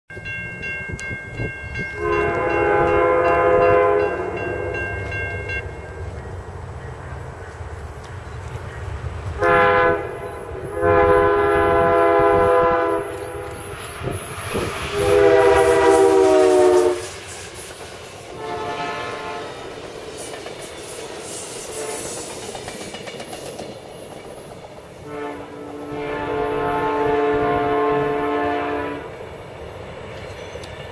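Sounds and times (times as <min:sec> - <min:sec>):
train wheels rumbling on rails: 0:00.2 - 0:30.9
train air horn blasts: 0:01.9 - 0:05.7, 0:09.4 - 0:17.4, 0:18.3 - 0:19.8, 0:21.5 - 0:22.4, 0:25.0 - 0:29.2.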